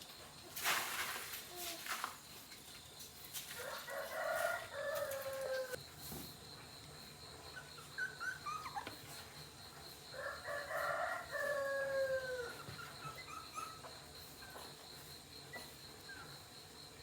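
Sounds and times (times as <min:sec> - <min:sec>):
rooster crowing: 0:03.6 - 0:05.8, 0:10.2 - 0:12.6.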